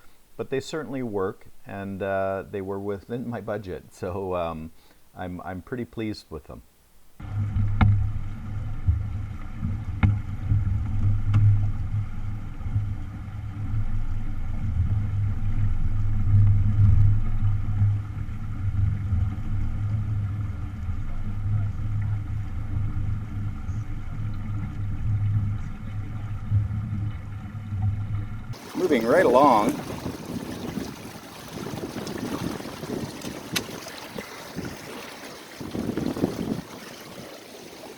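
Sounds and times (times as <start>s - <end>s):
water wash of sailboat: 28.5s - 37.9s
wind buffeting microphone: 28.6s - 37.9s.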